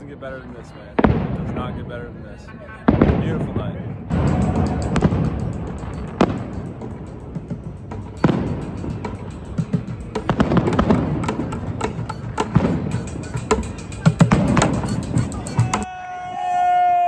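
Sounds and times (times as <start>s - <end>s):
fireworks bangs and crackling: 1.0s - 1.9s, 2.9s - 7.3s, 8.1s - 9.3s, 10.2s - 11.5s
music: 4.1s - 15.9s.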